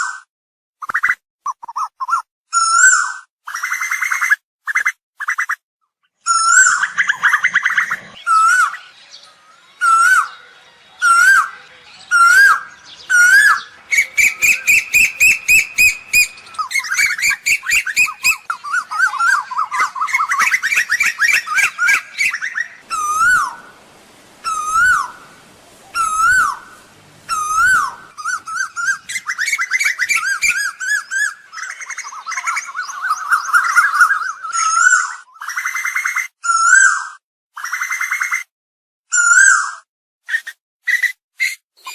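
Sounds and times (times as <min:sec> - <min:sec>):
koel calling: 0:06.3 - 0:35.1.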